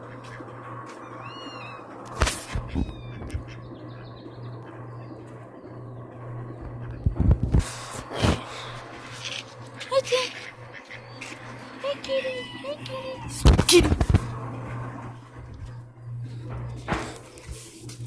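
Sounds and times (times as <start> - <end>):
cat meowing: 1.1 - 1.9, 2.6 - 3.4.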